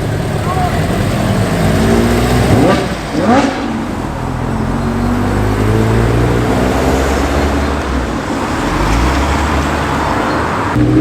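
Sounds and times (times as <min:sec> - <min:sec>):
car driving by: 0:00.0 - 0:11.0.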